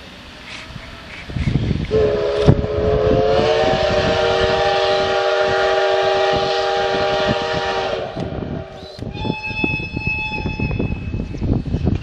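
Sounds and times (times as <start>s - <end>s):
steam hissing: 0.0s - 11.1s
steam locomotive whistle: 1.9s - 11.2s.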